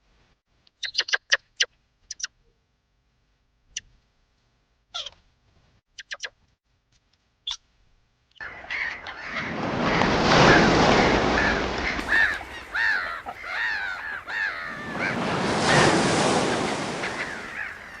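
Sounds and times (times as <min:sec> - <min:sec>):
harsh bird calls: 0:08.4 - 0:18.0
rushing noise: 0:09.2 - 0:18.0.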